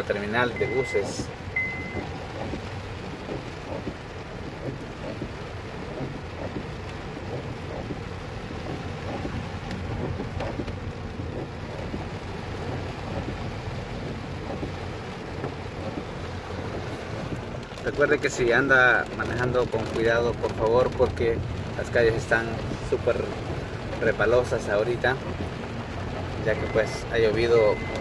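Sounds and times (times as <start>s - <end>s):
car driving on wet street: 0.0s - 28.0s
heavy rain on car roof: 0.0s - 28.0s.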